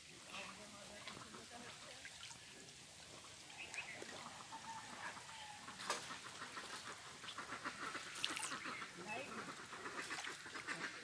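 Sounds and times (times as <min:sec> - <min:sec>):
pond water: 0:00.0 - 0:11.0
faint bird calls: 0:03.4 - 0:11.0.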